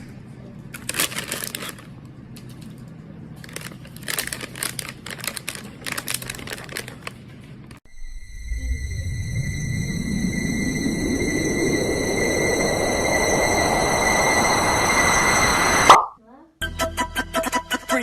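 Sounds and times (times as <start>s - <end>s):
crinkling and rustling: 0.6s - 7.8s.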